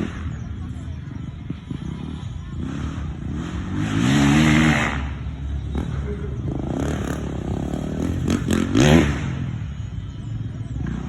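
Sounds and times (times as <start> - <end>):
low drone of engines: 0.0 - 11.0
motorcycle engines revving: 0.0 - 11.0.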